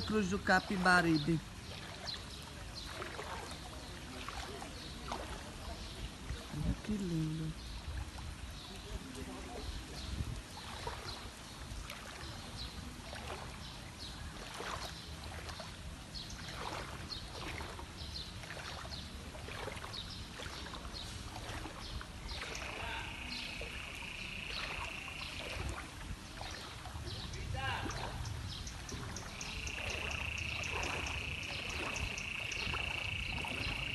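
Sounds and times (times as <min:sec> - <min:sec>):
water rushing and splashing: 0:00.0 - 0:33.9
wind rumbling on microphone: 0:00.0 - 0:33.9.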